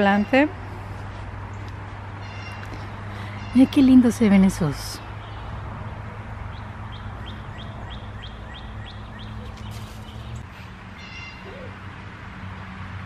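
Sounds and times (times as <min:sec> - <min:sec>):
songbird chirping: 0:01.5 - 0:11.8.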